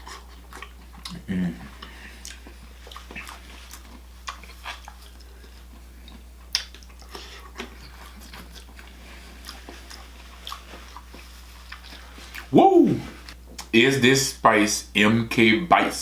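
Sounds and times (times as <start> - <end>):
chewing and biting: 0.0 - 12.5.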